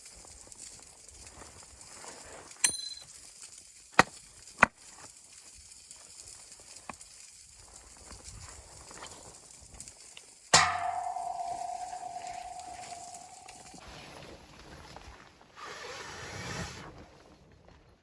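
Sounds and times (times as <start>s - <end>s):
sharp knocks: 10.6s - 13.8s.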